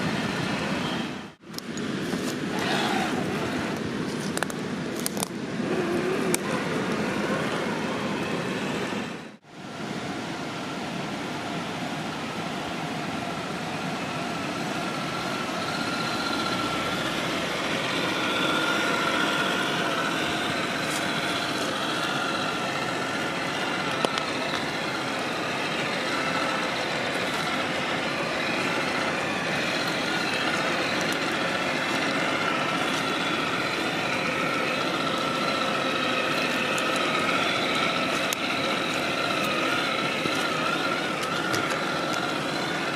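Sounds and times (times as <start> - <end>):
electric motor whining: 2.2 - 3.9, 5.1 - 9.1, 14.8 - 42.9.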